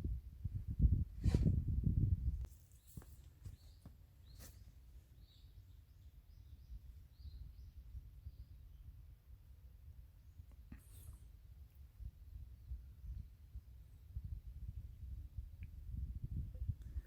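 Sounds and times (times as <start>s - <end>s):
small bird chirping: 2.5s - 9.0s.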